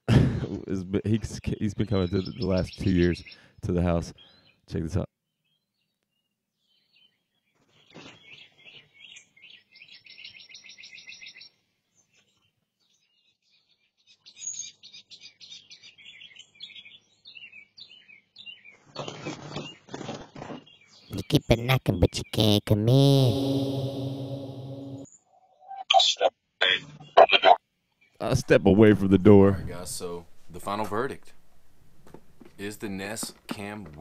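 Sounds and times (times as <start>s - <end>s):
small bird chirping: 1.4s - 4.6s, 5.4s - 19.9s.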